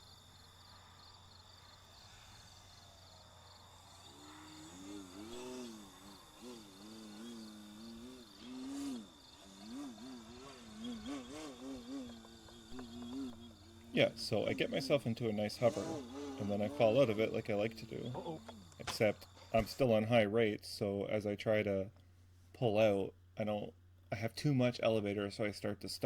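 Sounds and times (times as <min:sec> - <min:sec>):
electric motor and propeller whining: 0:00.0 - 0:19.8
crickets chirping: 0:00.0 - 0:24.7.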